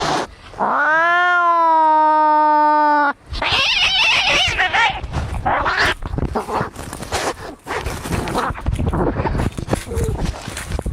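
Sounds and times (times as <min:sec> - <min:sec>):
cat yowling: 0:00.6 - 0:05.0
cat screeching: 0:00.6 - 0:06.0.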